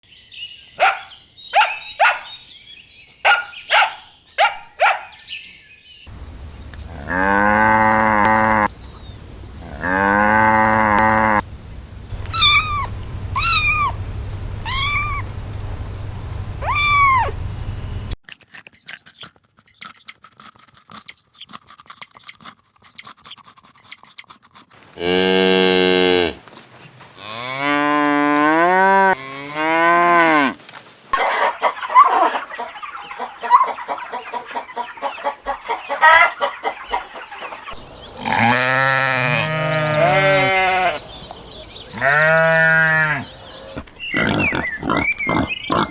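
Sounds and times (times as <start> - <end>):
animal call falling in steps: 6.1 - 11.4, 12.1 - 14.0, 14.7 - 15.3, 16.6 - 17.4
cattle-like lowing: 6.1 - 18.2, 42.0 - 45.9
steady high buzz: 6.1 - 18.2
swooping chirps: 6.1 - 18.2
quick sharp animal chirps: 11.7 - 15.4, 16.6 - 17.5, 18.7 - 20.2, 20.9 - 24.3.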